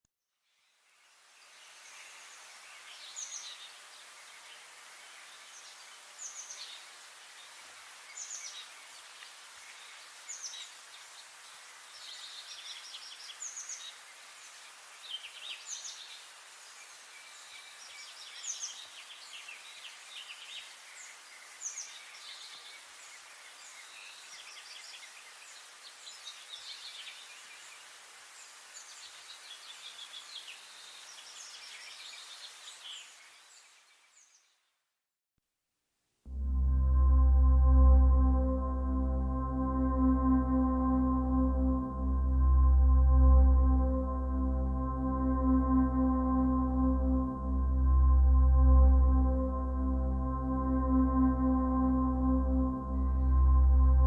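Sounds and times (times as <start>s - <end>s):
steady hiss: 1.0s - 34.2s.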